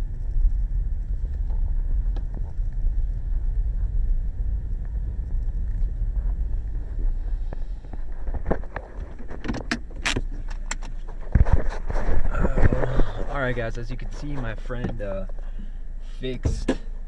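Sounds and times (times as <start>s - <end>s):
car engine rumbling: 0.0s - 17.0s
sharp clicks and metallic clinks: 8.6s - 11.2s.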